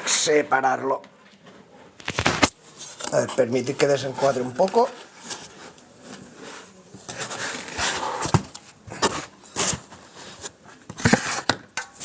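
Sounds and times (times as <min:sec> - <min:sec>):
packing material rustling: 0:02.0 - 0:02.6.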